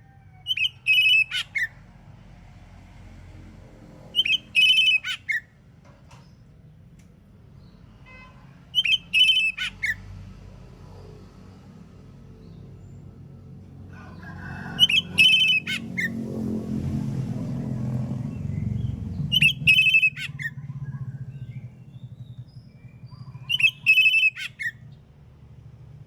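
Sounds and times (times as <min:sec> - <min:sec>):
bird singing whistled phrases: 0:00.5 - 0:01.6, 0:04.2 - 0:05.3, 0:08.8 - 0:10.0, 0:19.3 - 0:20.5, 0:22.2 - 0:24.8
low background rumble: 0:11.8 - 0:26.0.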